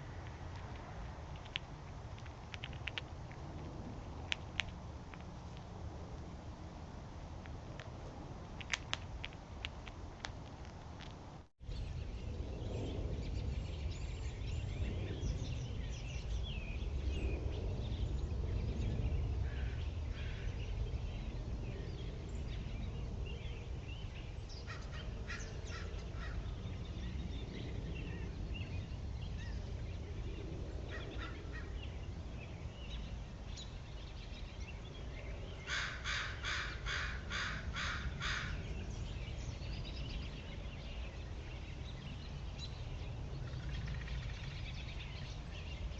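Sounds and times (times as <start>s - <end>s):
steady low rumble: 0.0s - 35.7s
birds calling: 19.5s - 45.9s
harsh bird calls: 32.8s - 45.8s.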